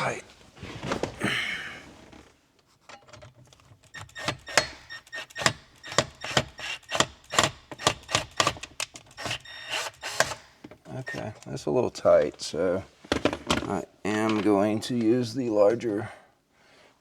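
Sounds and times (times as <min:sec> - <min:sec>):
screw clicking into wood: 0:03.8 - 0:11.5.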